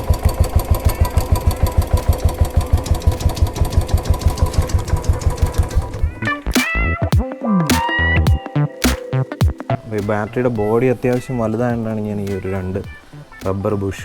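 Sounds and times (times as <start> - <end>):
motorcycle engine idling: 0.0 - 6.3
electronic music: 5.4 - 11.2.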